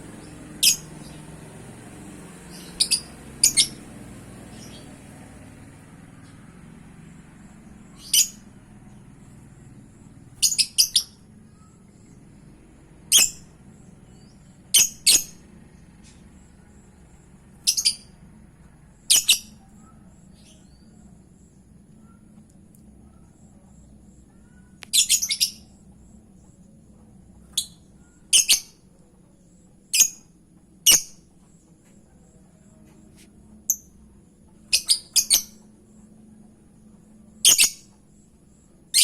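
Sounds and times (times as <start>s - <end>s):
lovebird chirping: 0.1s - 1.4s, 2.2s - 6.5s, 7.4s - 12.4s, 13.1s - 18.2s, 19.0s - 22.2s, 24.3s - 25.8s, 27.4s - 28.8s, 29.9s - 31.3s, 33.1s - 35.8s, 37.4s - 39.0s.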